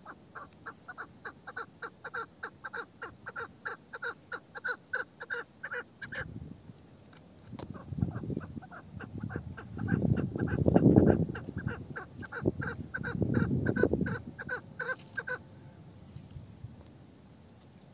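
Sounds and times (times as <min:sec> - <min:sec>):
partridge clucking calls: 0:00.0 - 0:06.3, 0:07.4 - 0:15.4.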